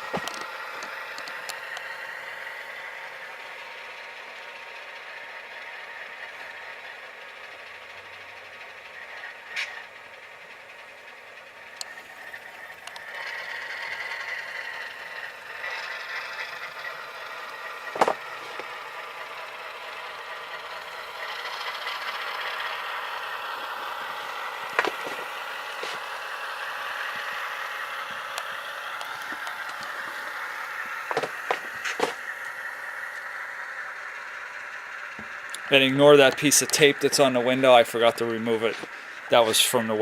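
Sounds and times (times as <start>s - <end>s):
diesel engine sound from small speaker: 0.0s - 40.0s
rattle: 0.0s - 40.0s.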